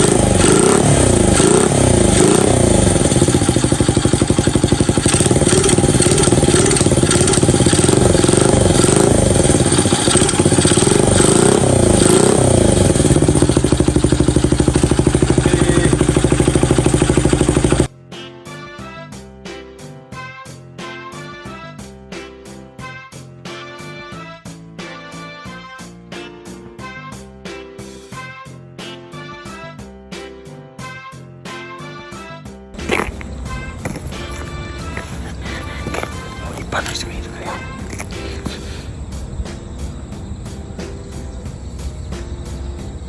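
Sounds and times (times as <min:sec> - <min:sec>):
small engine revving and idling: 0:00.0 - 0:17.9, 0:32.8 - 0:36.9
light music: 0:17.9 - 0:43.0.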